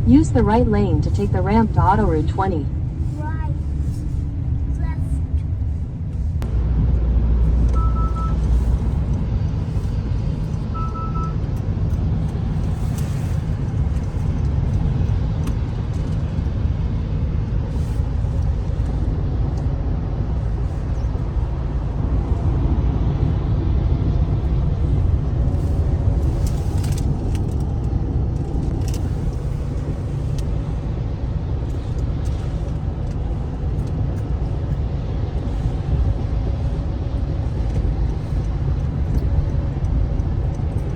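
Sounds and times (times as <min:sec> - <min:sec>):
road and tyre rumble: 0:00.0 - 0:40.9
two-tone electronic beeps: 0:07.8 - 0:08.4, 0:10.8 - 0:11.4.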